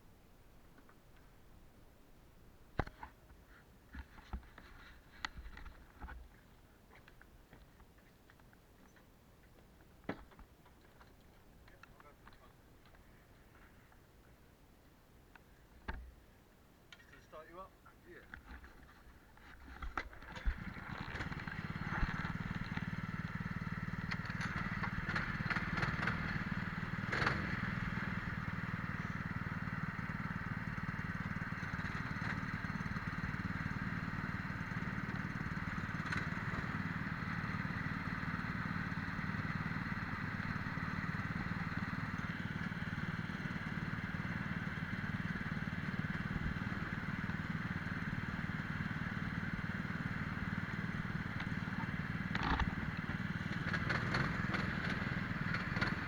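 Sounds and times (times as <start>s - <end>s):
kart engines running: 18.4s - 56.0s.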